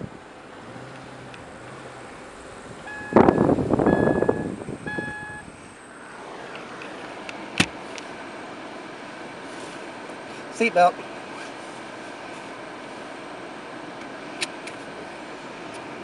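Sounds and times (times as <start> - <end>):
car warning chime beeps: 2.8 - 5.5.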